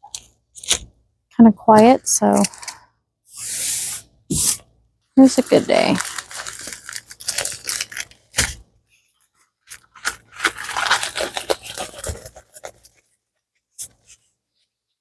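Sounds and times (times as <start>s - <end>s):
packaging crinkling and scraping: 1.8s - 2.8s, 5.2s - 13.2s.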